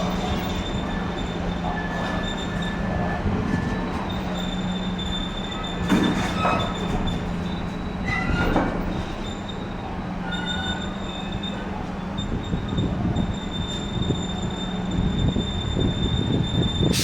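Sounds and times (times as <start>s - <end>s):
train rumbling on tracks: 0.0s - 17.0s
wheels squealing on rails: 0.0s - 17.0s.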